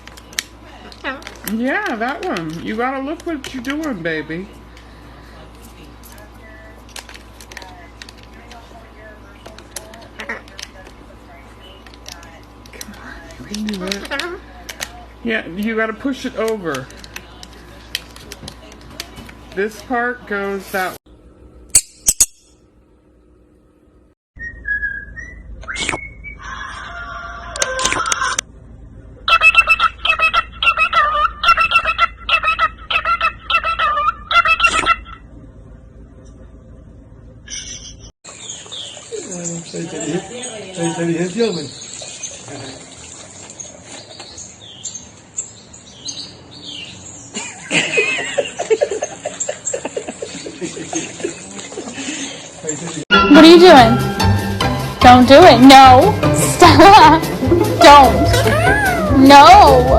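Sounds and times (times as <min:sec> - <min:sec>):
parrot whistling: 0:24.4 - 0:26.8, 0:29.3 - 0:35.2.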